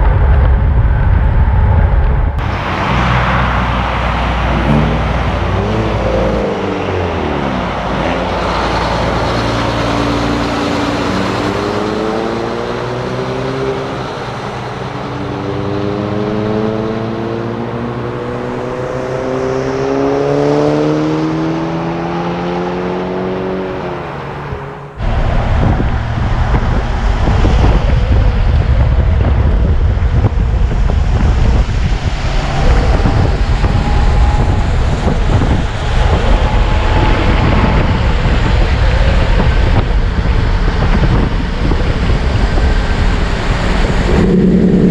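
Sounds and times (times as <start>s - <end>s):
road noise: 0.0s - 44.9s
heavy truck engine accelerating: 2.3s - 44.9s
vehicle passing by: 2.4s - 29.6s, 42.0s - 44.9s.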